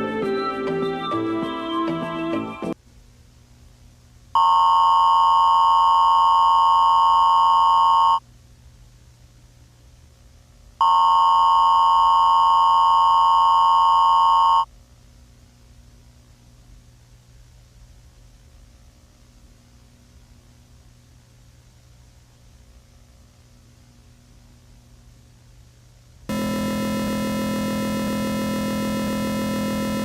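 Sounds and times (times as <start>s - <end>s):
low electrical hum: 2.8s - 30.0s
electronic alert tone beeping: 26.3s - 30.0s.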